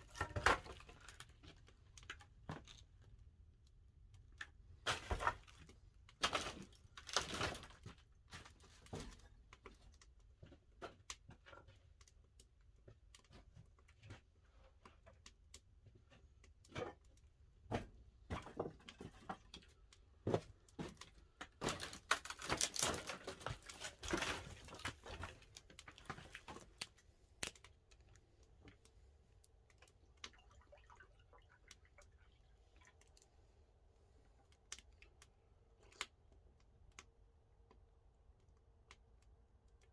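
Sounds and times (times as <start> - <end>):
firewood crackling and popping: 15.2 - 33.4.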